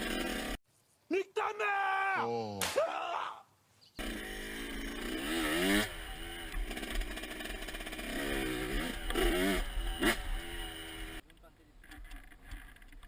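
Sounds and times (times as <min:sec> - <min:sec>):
motocross bike engine revving: 0:00.0 - 0:00.6, 0:04.0 - 0:11.2.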